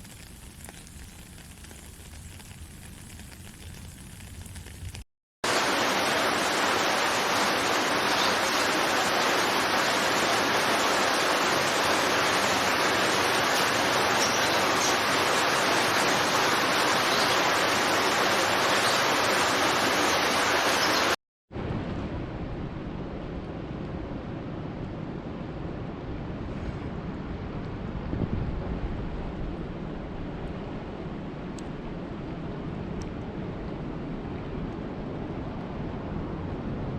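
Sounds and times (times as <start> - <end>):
heavy rain falling: 0.0 - 21.2
dull quiet rain: 0.0 - 26.3.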